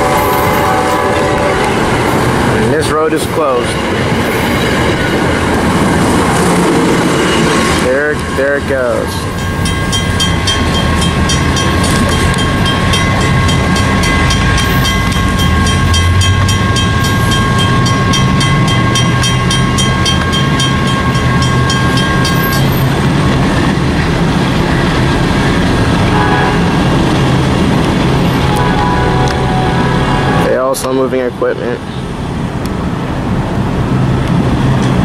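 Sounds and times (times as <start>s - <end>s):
diesel train rumbling: 0.0s - 35.0s
bell ringing rapidly: 7.8s - 22.9s.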